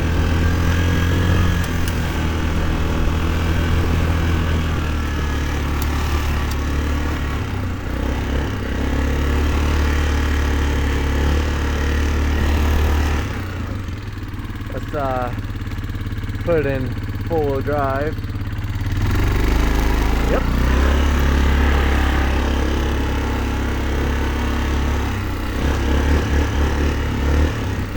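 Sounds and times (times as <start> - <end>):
atv engine running: 0.0 - 27.9.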